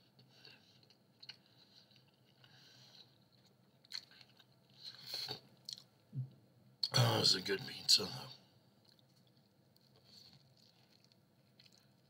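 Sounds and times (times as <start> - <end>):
person chewing food: 0.0 - 6.0, 8.8 - 12.0.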